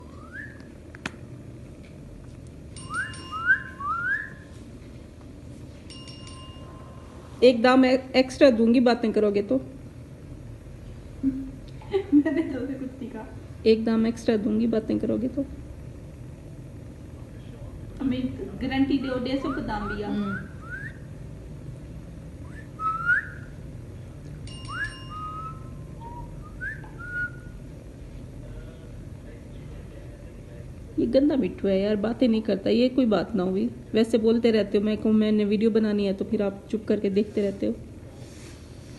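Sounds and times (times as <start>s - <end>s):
short rising whistles: 0.0s - 0.6s, 2.9s - 4.5s, 19.8s - 21.1s, 22.4s - 23.5s, 24.7s - 27.6s.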